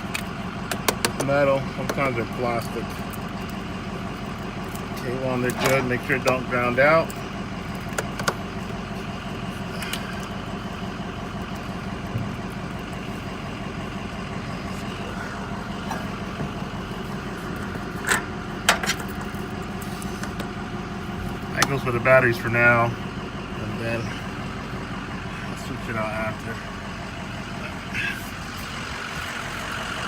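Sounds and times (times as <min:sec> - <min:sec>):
truck engine idling: 0:00.0 - 0:30.0.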